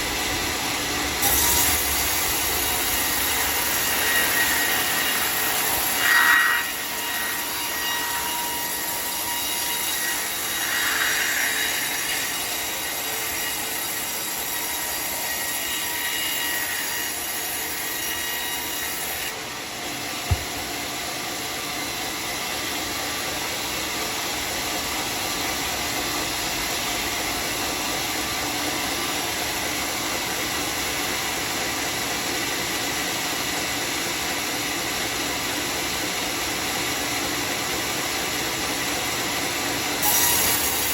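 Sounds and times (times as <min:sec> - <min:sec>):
sawmill saw cutting log: 0:00.0 - 0:40.9
saw blade squeal: 0:01.2 - 0:19.4, 0:40.0 - 0:40.9.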